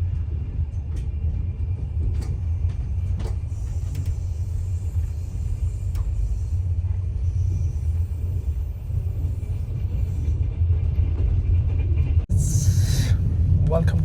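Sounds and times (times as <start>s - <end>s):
train rumble inside carriage: 0.0s - 14.0s
faint knocks and rattles: 0.1s - 4.4s.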